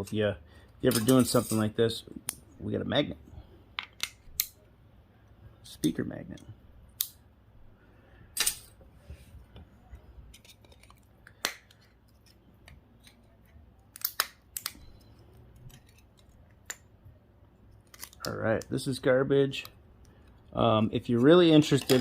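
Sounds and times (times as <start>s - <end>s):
clicks of small parts handled: 3.8s - 4.6s, 10.3s - 16.9s, 17.7s - 18.7s, 21.7s - 22.0s.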